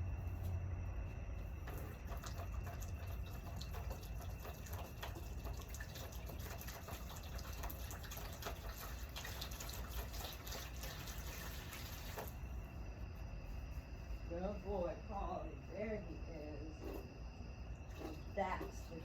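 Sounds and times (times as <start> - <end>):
water pouring and splashing: 1.6 - 12.5.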